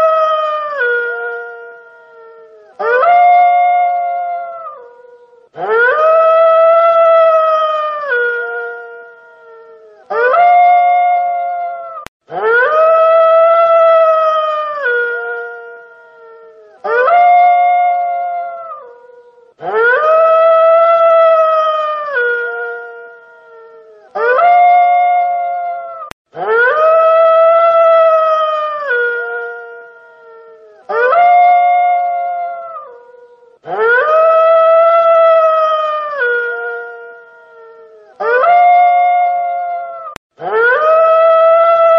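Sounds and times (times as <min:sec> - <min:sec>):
wolf howling: 0:00.0 - 0:41.9.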